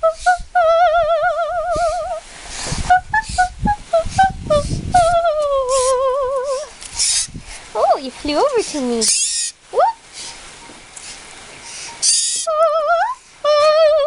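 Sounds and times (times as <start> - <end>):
woman singing high notes: 0.0 - 2.2, 2.9 - 6.7, 12.4 - 14.0.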